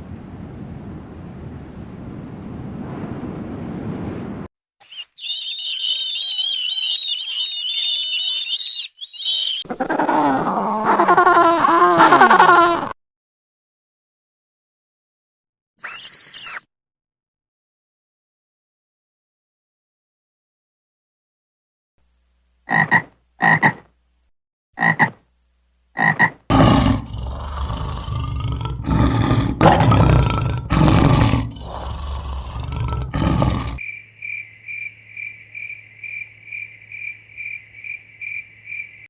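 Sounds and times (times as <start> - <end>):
animal calls: 15.8 - 16.6.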